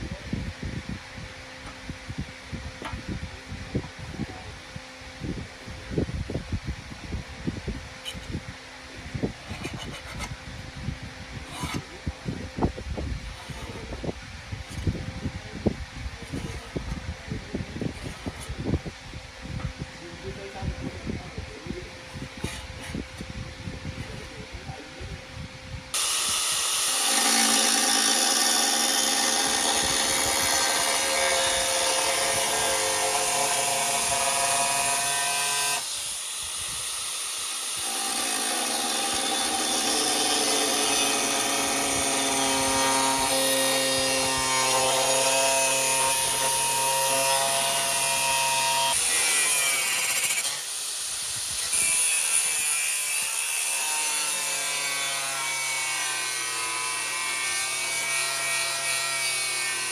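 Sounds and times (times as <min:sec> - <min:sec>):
handheld power tool motor: 0:26.0 - 0:59.9.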